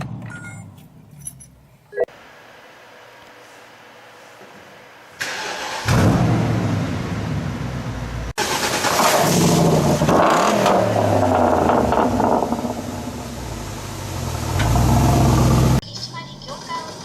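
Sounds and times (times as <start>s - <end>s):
car engine revving loudly: 5.6s - 15.8s.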